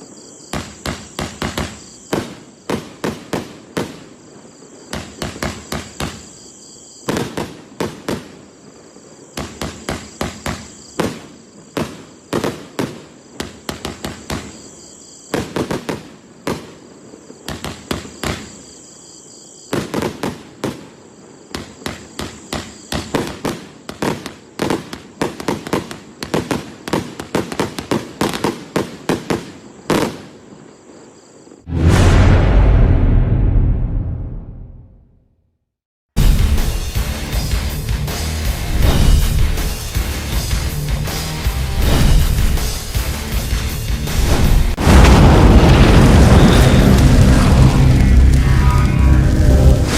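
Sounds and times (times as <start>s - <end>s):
deep firework boom: 31.7s - 35.2s, 36.2s - 37.5s, 38.7s - 40.5s, 41.7s - 43.4s, 44.0s - 49.9s
firecracker cracks: 38.2s - 43.2s, 44.2s - 48.5s.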